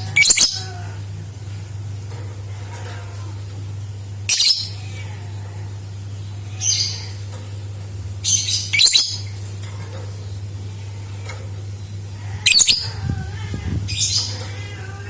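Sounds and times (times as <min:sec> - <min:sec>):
low electrical hum: 0:00.0 - 0:15.0
bird shrill calls: 0:08.3 - 0:09.2, 0:12.5 - 0:12.9.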